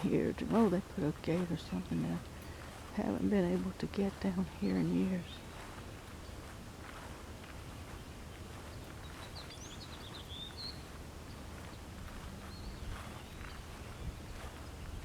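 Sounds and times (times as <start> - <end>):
songbird chirping: 0.0 - 5.6, 8.7 - 15.0
wind rumble on microphone: 0.0 - 15.0.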